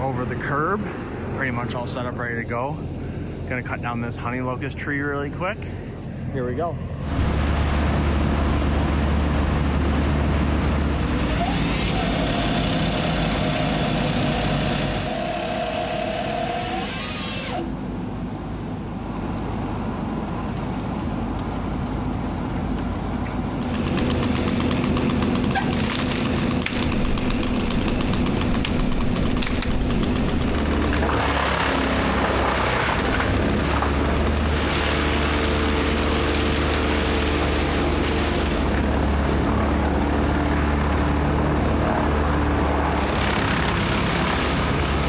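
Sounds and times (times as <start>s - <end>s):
diesel engine running: 0.0s - 15.2s, 17.6s - 45.0s
rough grinding noise: 23.6s - 45.0s.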